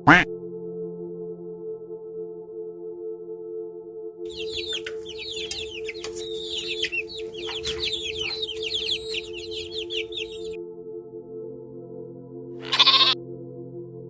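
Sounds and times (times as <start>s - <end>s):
ambient music drone: 0.4s - 12.4s
chicks peeping: 4.3s - 10.6s.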